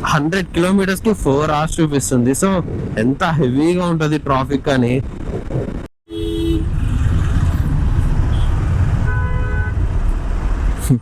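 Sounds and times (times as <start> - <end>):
low rumble of engines: 0.0 - 11.0
wind: 0.0 - 11.0
vehicle horns honking: 6.1 - 6.8, 8.2 - 10.0.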